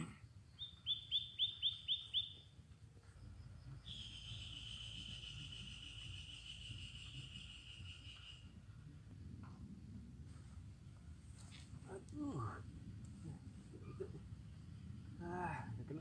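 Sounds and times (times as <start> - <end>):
songbird calling: 0.0 - 8.7.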